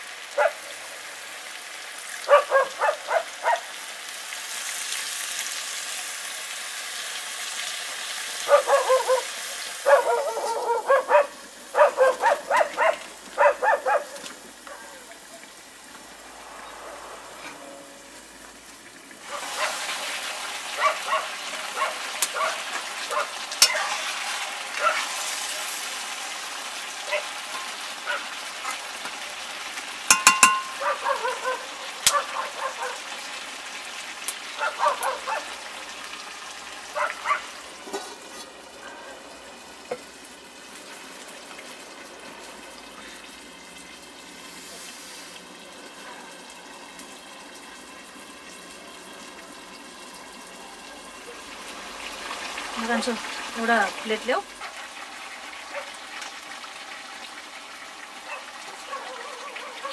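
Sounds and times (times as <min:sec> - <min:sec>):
curry sizzling in a wok: 0:00.0 - 0:59.9
metal ladle scraping a wok: 0:16.6 - 0:18.8, 0:37.8 - 0:38.6
sharp ringing knocks: 0:30.1 - 0:30.8.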